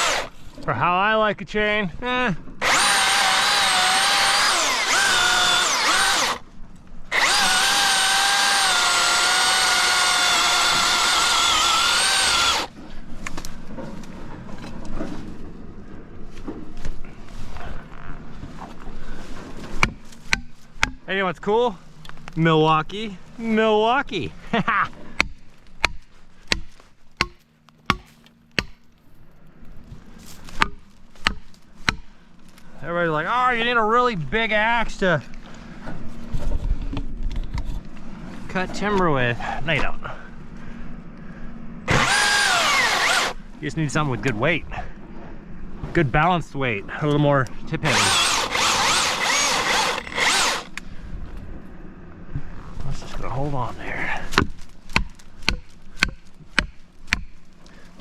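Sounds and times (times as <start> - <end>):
electric chainsaw whining: 0.0 - 0.3, 2.6 - 6.4, 7.1 - 12.7, 41.9 - 43.4, 47.8 - 50.8
axe striking wood: 25.2 - 28.9, 54.4 - 57.3.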